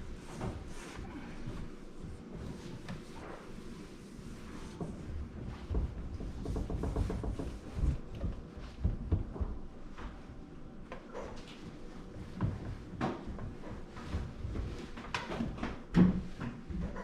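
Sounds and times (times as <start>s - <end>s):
rag rubbing a microwave: 0.0s - 9.0s.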